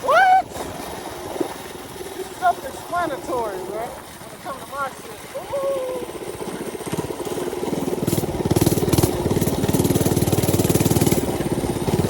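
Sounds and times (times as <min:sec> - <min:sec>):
small motorbike engine running: 0:00.2 - 0:12.0.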